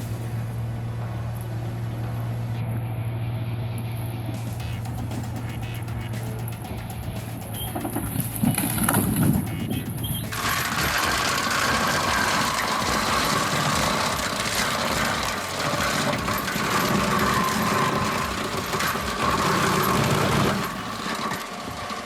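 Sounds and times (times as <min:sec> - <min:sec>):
music: 0:00.0 - 0:22.0
rock crusher grinding stone: 0:07.6 - 0:22.0.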